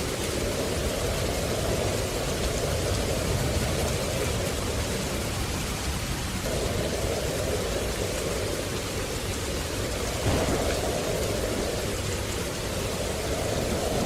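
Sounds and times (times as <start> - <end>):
water hissing: 6.4 - 14.0.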